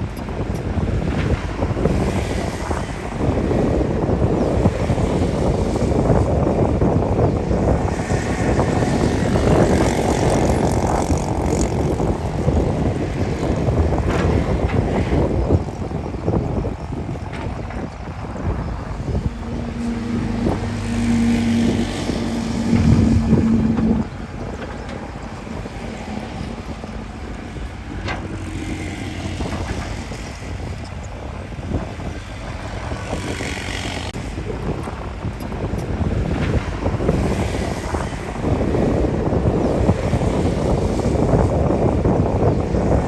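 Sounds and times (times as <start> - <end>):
wind buffeting microphone: 0.0 - 43.0
diesel engine running: 17.0 - 32.7.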